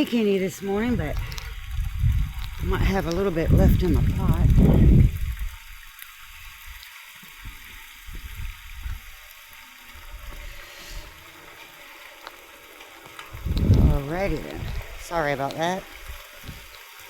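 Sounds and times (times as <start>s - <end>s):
heavy rain falling: 0.0s - 6.0s, 8.1s - 17.0s
low thumps: 13.3s - 15.2s.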